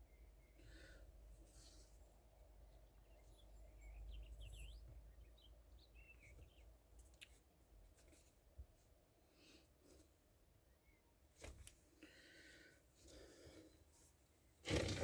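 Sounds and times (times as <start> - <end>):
bird chirps: 2.8 - 6.7.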